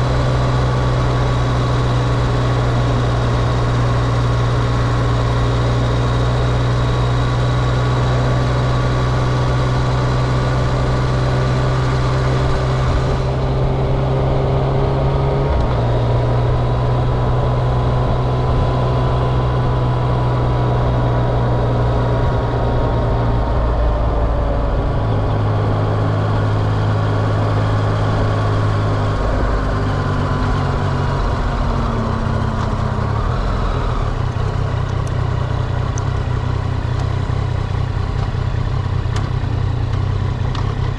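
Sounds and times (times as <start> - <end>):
vehicle engines idling: 19.3 - 40.9.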